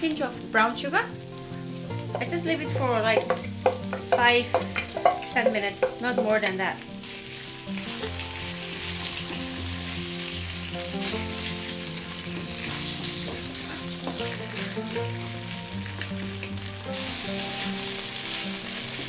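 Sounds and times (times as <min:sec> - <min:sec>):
background music: 0:00.0 - 0:19.0
pork sizzling in hot oil: 0:00.0 - 0:19.0
wooden spatula clicking on pan: 0:02.1 - 0:06.5.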